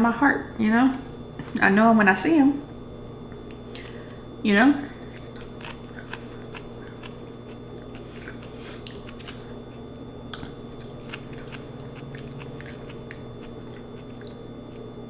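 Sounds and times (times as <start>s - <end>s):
steady low hum: 0.0s - 15.0s
wet chewing and mouth smacking: 3.3s - 4.2s, 4.8s - 15.0s.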